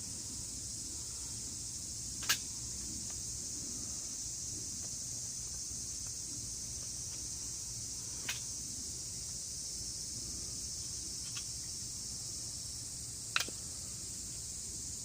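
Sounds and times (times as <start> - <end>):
crickets chirping: 0.0 - 15.0
sharp snaps: 2.2 - 3.2, 13.3 - 13.7.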